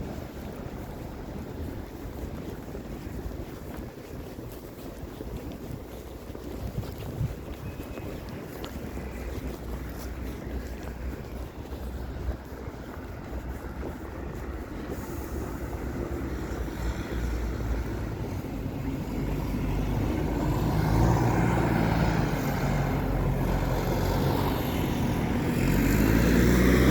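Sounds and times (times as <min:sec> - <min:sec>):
traffic rumble: 0:00.0 - 0:26.9
approaching vehicle engine: 0:08.5 - 0:26.9.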